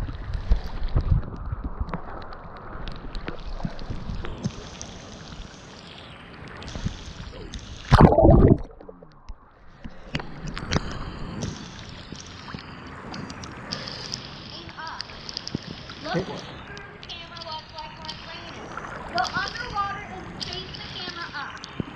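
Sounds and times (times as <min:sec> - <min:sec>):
rain pattering on a tablet: 0:00.0 - 0:05.7, 0:10.5 - 0:21.9.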